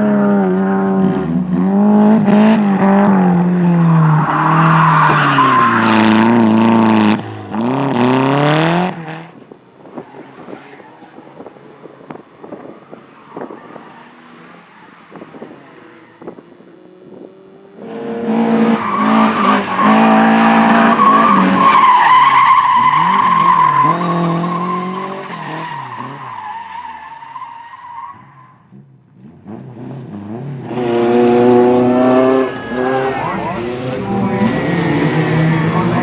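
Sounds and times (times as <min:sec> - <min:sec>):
race car engine revving: 0:00.0 - 0:26.6, 0:28.7 - 0:36.0
second car engine: 0:00.0 - 0:36.0
tyres squealing and skidding: 0:03.7 - 0:07.1, 0:09.8 - 0:16.4, 0:17.8 - 0:28.7, 0:32.0 - 0:36.0.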